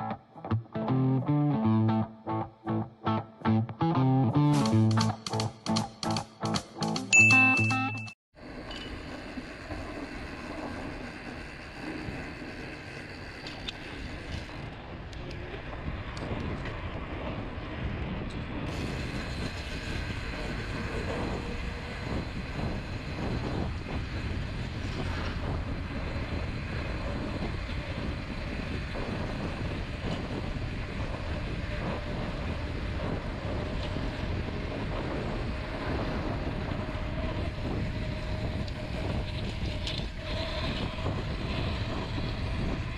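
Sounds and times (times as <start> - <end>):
bike tyres rumbling on dirt: 8.4 - 42.9
bike rattling: 8.5 - 42.9
wind noise on microphone: 8.6 - 42.9.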